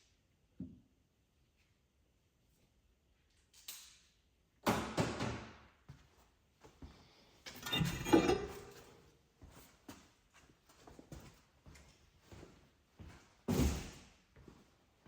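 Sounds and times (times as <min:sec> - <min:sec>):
metal tools clanking: 0:07.5 - 0:09.0.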